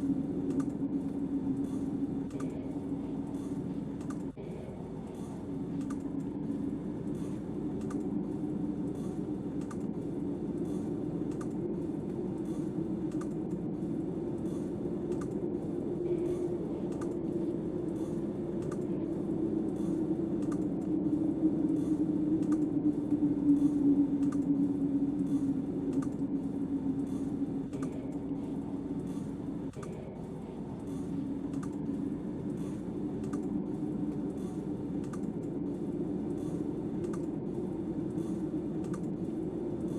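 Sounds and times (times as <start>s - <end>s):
snowstorm wind howling: 0.0s - 39.9s
faint clicks: 0.4s - 2.6s, 3.3s - 4.4s, 5.2s - 6.3s, 7.2s - 8.1s, 8.8s - 13.7s, 14.4s - 15.5s, 16.2s - 30.1s, 30.7s - 37.4s, 38.0s - 39.9s.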